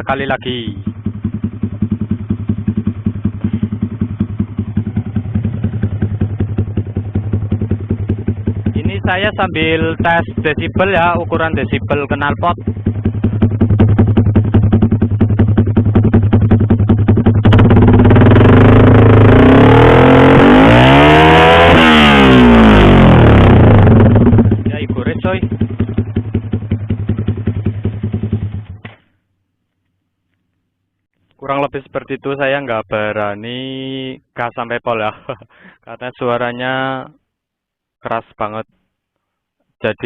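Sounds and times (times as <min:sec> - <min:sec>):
motorcycle engine idling: 0:00.0 - 0:20.4, 0:21.6 - 0:29.3.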